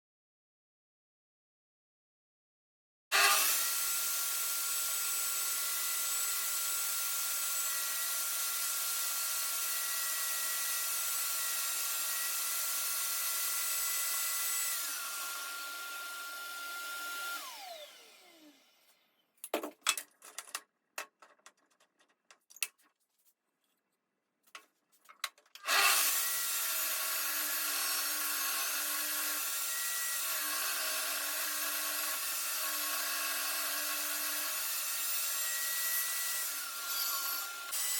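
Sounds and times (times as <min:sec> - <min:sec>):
woodworking machine cutting wood: 0:03.1 - 0:19.2, 0:25.6 - 0:37.9
machine winding down whine: 0:17.0 - 0:19.1
handling knocks and clicks: 0:19.4 - 0:23.0, 0:24.4 - 0:25.6.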